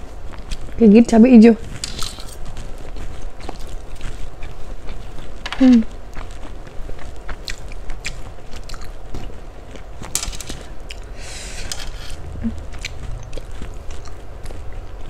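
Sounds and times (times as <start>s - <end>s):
chewing noodles: 0.0s - 0.8s, 1.6s - 15.0s.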